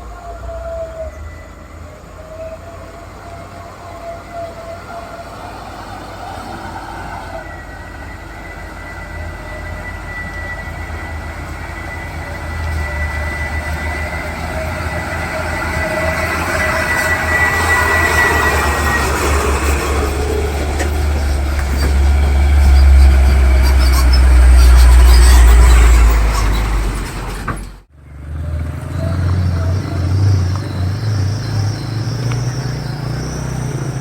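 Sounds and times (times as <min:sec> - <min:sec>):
high whine: 0:00.0 - 0:26.8
diesel truck engine labouring: 0:00.0 - 0:34.0.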